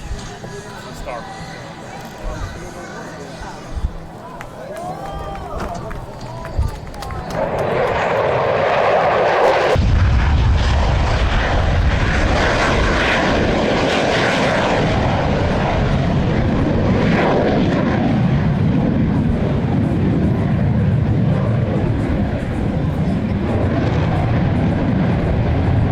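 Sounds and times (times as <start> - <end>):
aircraft engine noise: 0.0 - 25.9.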